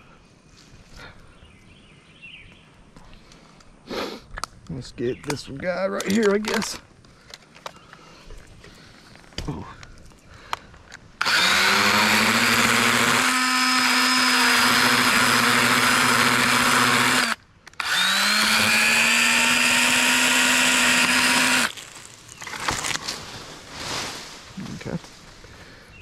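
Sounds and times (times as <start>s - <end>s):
electric chainsaw whining: 11.2s - 21.8s.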